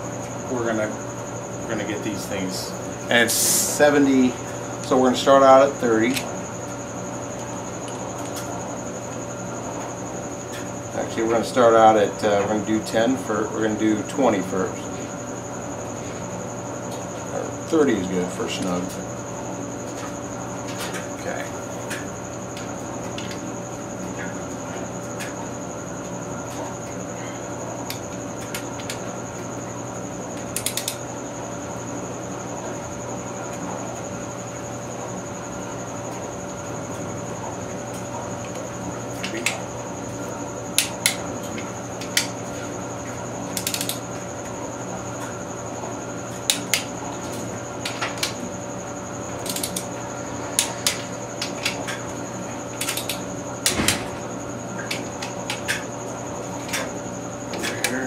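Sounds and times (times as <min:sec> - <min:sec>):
steady hum with high whine: 0:00.0 - 0:58.0
metallic clicks of hand tools: 0:30.6 - 0:31.0, 0:43.6 - 0:44.0, 0:49.4 - 0:49.8, 0:52.8 - 0:53.2.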